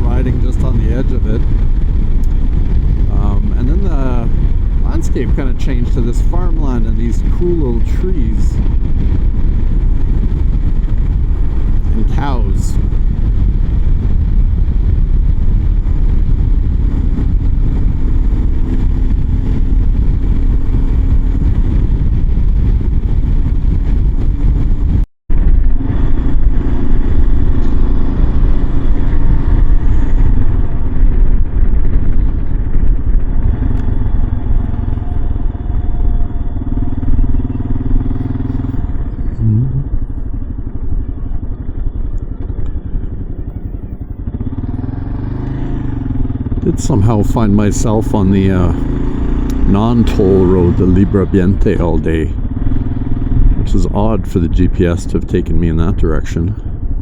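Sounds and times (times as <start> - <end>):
motorcycle engine running: 0.0 - 57.0
wind noise: 0.0 - 57.0.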